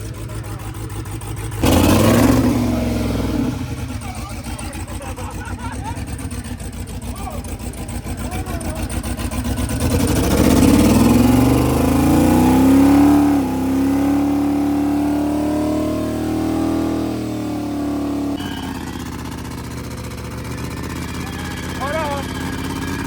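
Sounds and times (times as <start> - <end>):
car engine revving hard: 0.0 - 23.0.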